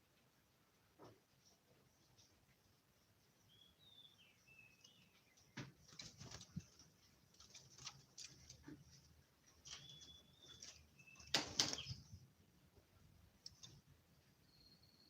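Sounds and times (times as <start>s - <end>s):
clicks and rustles: 5.6s - 12.2s
bird whistling: 9.8s - 11.2s.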